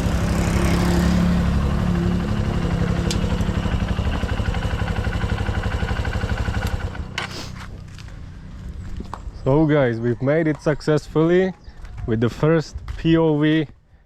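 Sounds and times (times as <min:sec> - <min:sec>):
motorbike engine idling: 0:00.0 - 0:08.1.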